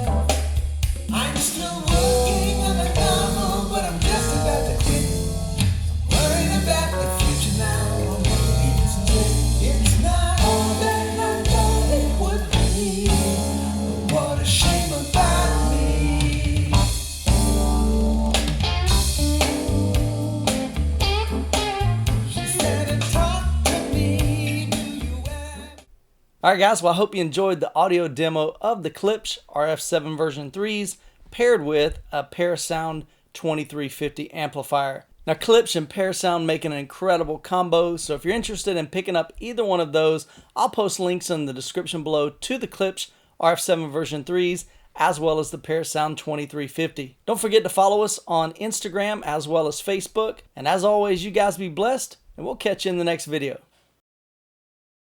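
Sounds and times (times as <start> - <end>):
heavy bass line: 0.0 - 25.8
song with vocals guitar and drums: 0.0 - 25.9.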